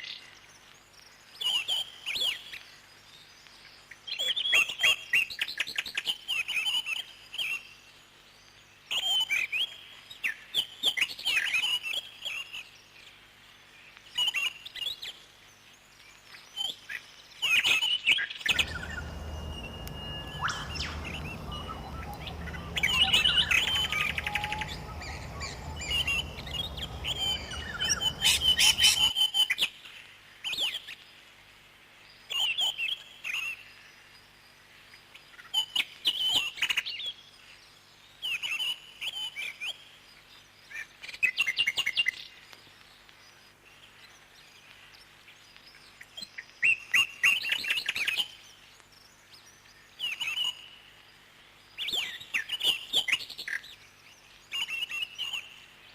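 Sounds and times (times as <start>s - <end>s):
steady low hum: 18.5s - 29.0s
parrots chirping: 18.5s - 29.1s.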